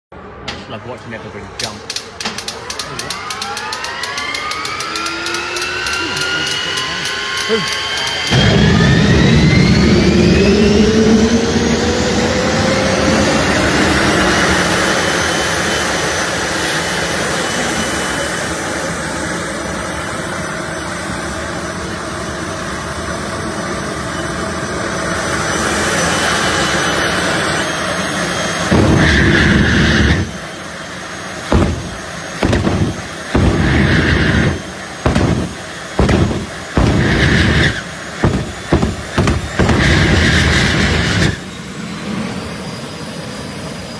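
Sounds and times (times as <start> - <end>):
turbine engine whine: 0.0 - 43.9
loud engine blasts: 0.2 - 42.9.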